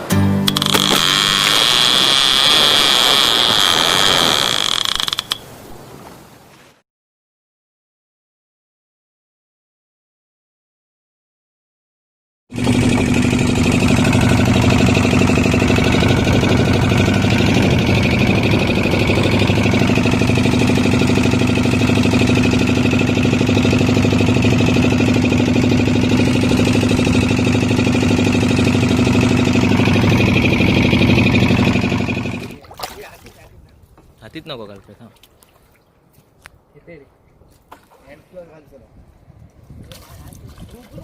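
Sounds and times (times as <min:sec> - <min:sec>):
loud motor drone: 0:00.5 - 0:05.4, 0:12.5 - 0:32.6.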